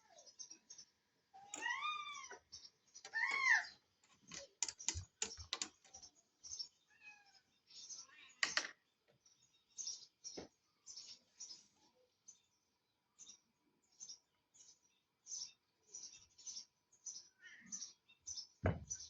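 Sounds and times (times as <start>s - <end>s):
cat meowing: 6.9s - 7.5s.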